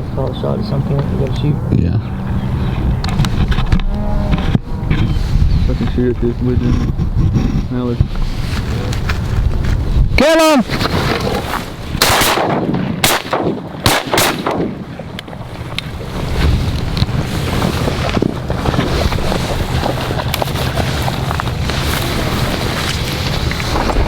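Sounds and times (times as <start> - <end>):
wind buffeting microphone: 0.0 - 24.0
shotgun blasts: 12.0 - 14.9.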